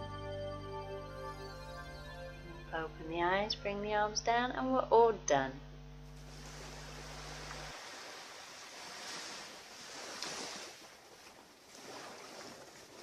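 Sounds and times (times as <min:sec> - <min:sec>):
ocean surf washing on shore: 0:06.2 - 0:13.0.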